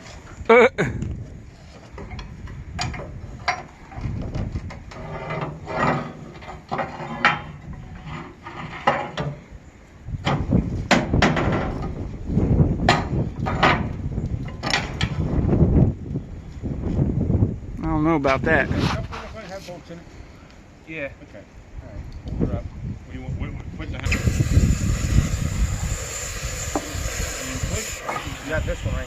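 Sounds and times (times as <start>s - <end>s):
metal knocks and clanks: 2.0s - 9.4s, 10.2s - 12.0s, 12.8s - 15.2s.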